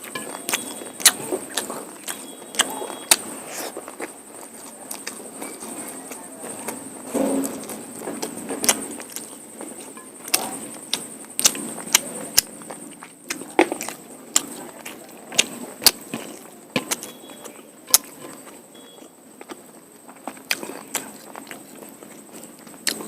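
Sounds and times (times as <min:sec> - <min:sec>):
chewing and mixing food: 0:00.0 - 0:23.0
mouth smacks and clicks: 0:00.2 - 0:05.7, 0:20.2 - 0:23.0.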